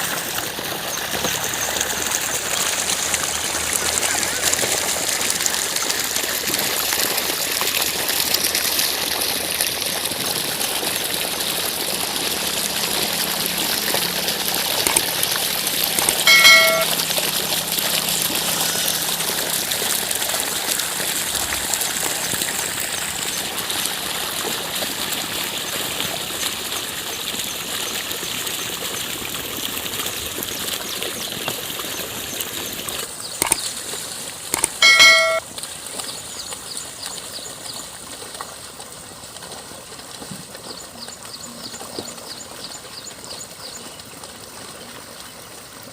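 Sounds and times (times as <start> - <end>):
water rushing and trickling: 0.0 - 45.9
short high-pitched call: 16.2 - 17.0, 34.6 - 35.4.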